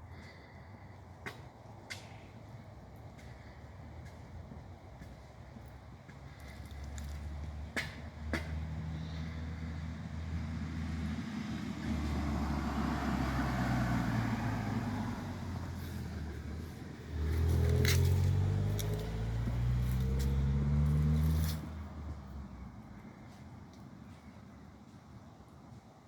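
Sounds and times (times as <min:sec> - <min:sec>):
engine humming: 0:00.0 - 0:25.8.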